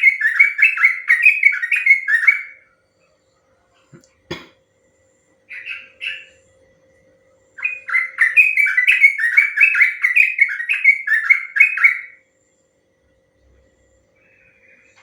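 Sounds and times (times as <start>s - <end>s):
bird singing bubbling notes: 7.6s - 12.2s.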